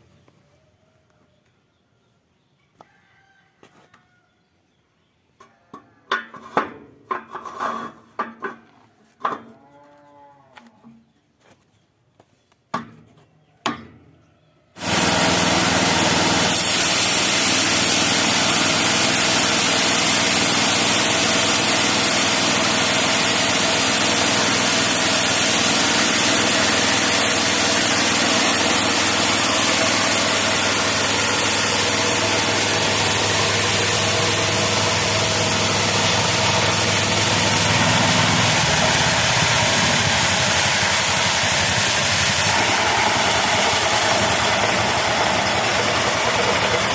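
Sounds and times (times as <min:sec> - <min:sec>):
bandsaw mill engine running: 0:14.8 - 0:46.9.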